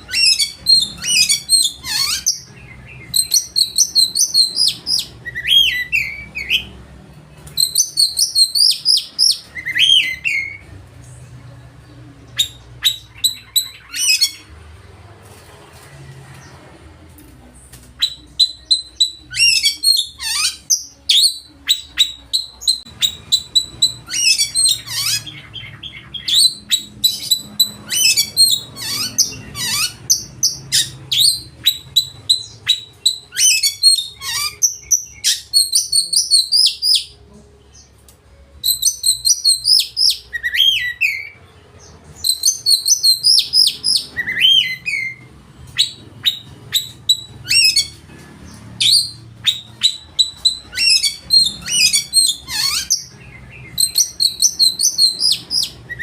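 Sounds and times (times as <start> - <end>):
bird singing varied whistles and trills: 0.0 - 6.7, 7.5 - 10.7, 12.3 - 14.4, 18.0 - 37.2, 38.6 - 48.0, 48.8 - 56.0.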